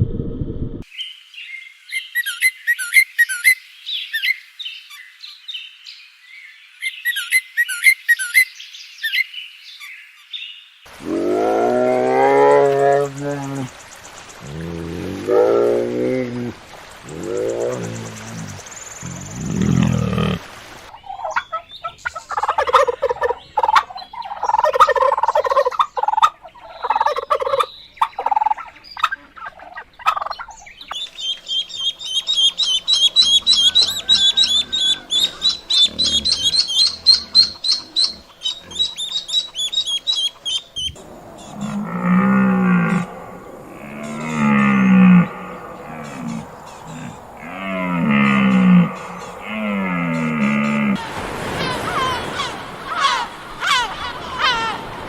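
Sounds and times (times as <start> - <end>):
fowl calling: 31.9 - 55.0
cow mooing: 41.4 - 51.0.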